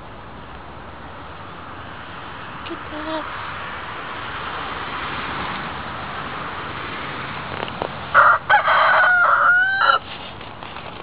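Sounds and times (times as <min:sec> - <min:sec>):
rooster crowing: 0:08.1 - 0:10.0.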